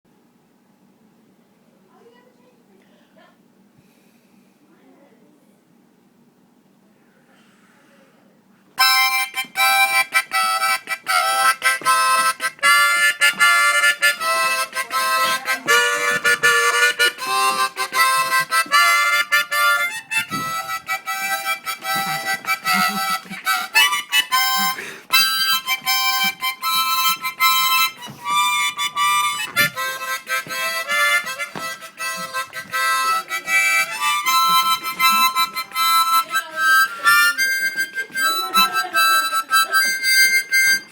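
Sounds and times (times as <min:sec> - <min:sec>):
harmonica playing choppy chords: 0:08.8 - 0:40.9.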